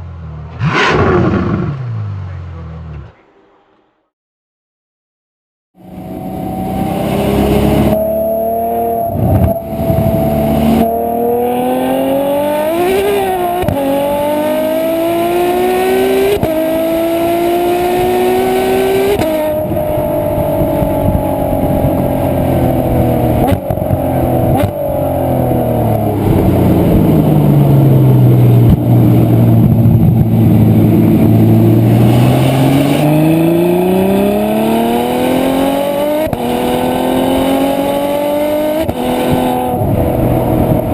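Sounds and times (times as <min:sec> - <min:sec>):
sports car engine accelerating: 0:00.0 - 0:03.1, 0:05.8 - 0:40.9.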